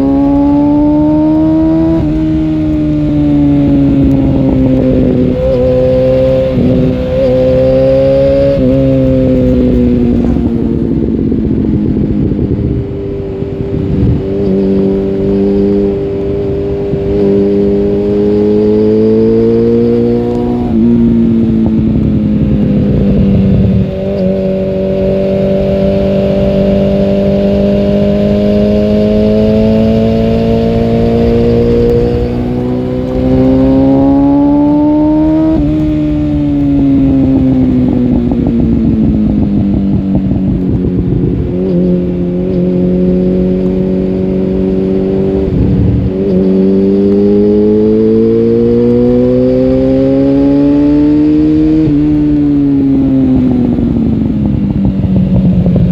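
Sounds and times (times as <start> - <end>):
motorcycle engine revving under load: 0.0 - 55.9.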